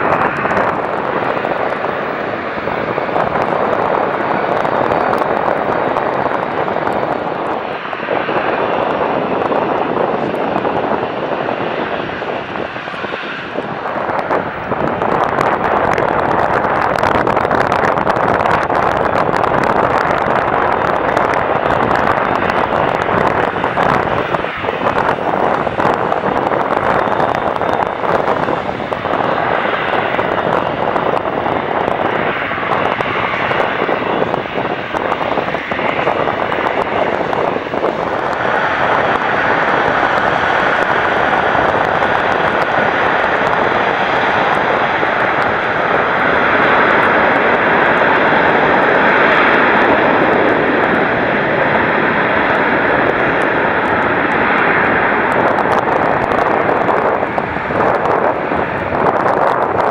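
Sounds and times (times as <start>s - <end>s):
jet engines roaring: 0.0s - 59.9s
wind buffeting microphone: 0.0s - 59.9s.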